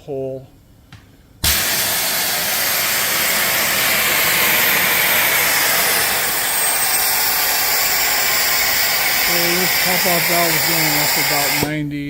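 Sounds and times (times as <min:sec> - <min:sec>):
safety valve venting steam hiss: 0:01.4 - 0:11.8.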